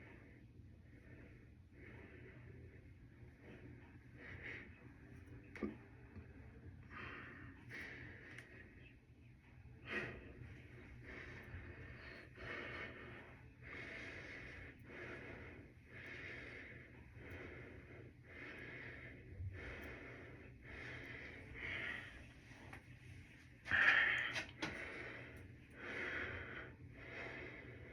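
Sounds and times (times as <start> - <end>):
faint low hum: 0.0 - 27.9
person breathing: 6.8 - 8.9, 9.8 - 27.9.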